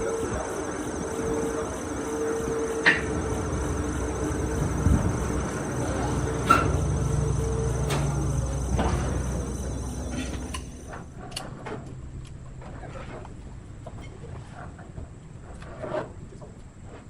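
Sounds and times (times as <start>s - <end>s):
insects chirring: 0.0s - 11.2s
low engine-like rumble: 0.0s - 14.4s.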